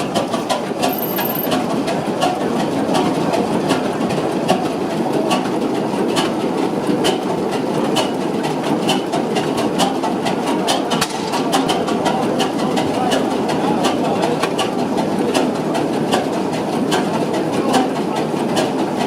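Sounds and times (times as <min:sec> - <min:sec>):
sharp repeating click: 0:00.8 - 0:01.5.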